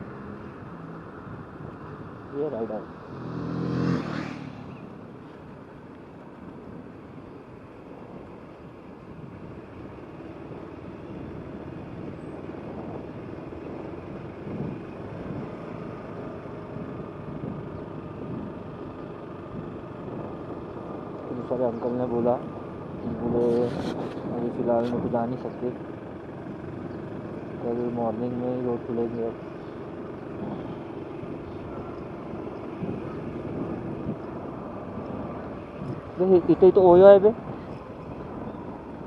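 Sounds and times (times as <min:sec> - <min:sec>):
scooter engine rumble: 0:00.0 - 0:39.0
tyres on road: 0:00.0 - 0:39.0
wind on microphone: 0:11.0 - 0:15.7, 0:16.6 - 0:21.1, 0:21.8 - 0:25.8, 0:30.2 - 0:39.0.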